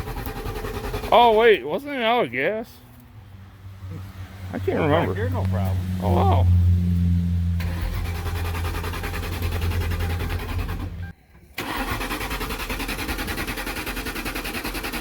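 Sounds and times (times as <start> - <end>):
starter cranking car engine: 0.0 - 1.6, 7.6 - 15.0.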